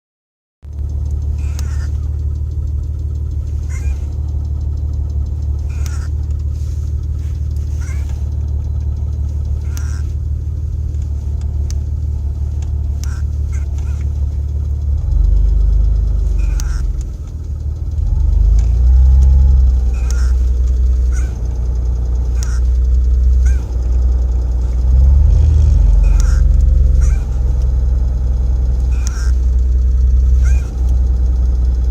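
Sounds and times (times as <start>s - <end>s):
car engine idling with tapping: 0.6s - 31.9s.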